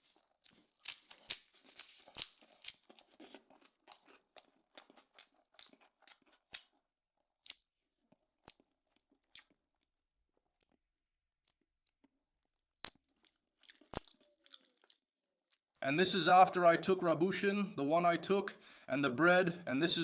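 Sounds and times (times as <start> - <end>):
chewing and mouth sounds: 0.0 - 10.8, 12.8 - 15.7.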